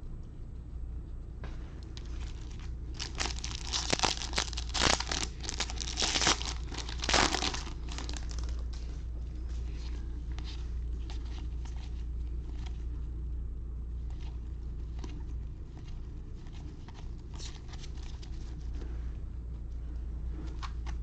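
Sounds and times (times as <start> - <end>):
foil wrapper tearing and crinkling: 2.0 - 8.6.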